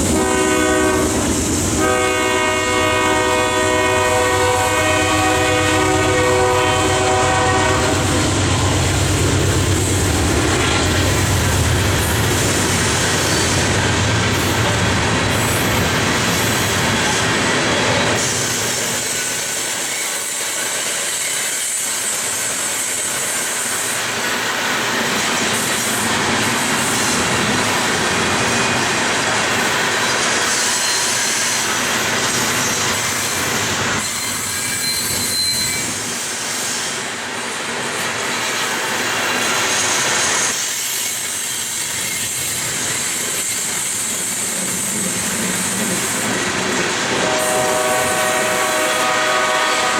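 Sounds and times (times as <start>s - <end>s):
train wheels clattering over rails: 7.1s - 48.4s
high wheel squeal: 30.1s - 37.0s.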